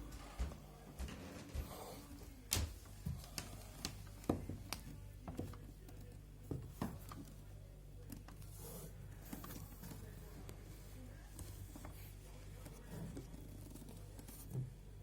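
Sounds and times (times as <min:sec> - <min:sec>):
footsteps on parquet floor: 0:00.0 - 0:01.8
low electrical hum: 0:00.0 - 0:15.0.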